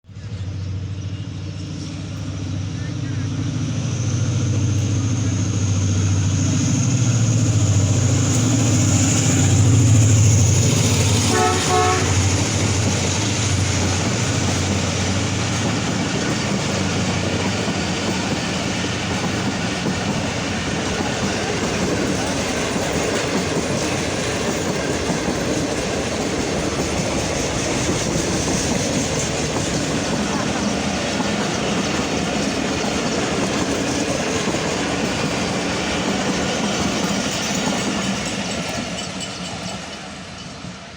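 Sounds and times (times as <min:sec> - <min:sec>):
diesel locomotive engine drone: 0:00.0 - 0:40.9
train wheels clattering on rails: 0:04.1 - 0:40.9
train horn: 0:11.0 - 0:13.0.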